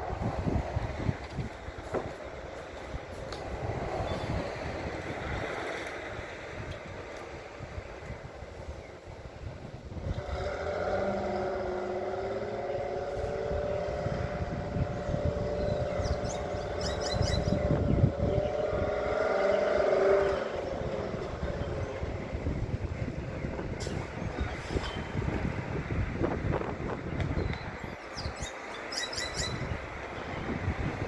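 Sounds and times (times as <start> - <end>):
truck engine low rumble: 0.0 - 28.1.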